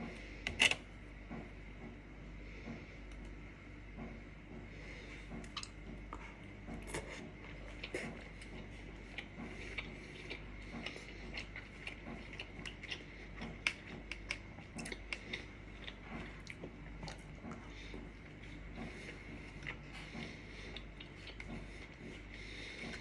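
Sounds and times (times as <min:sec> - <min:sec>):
person chewing crunchy snack: 0:05.5 - 0:23.0.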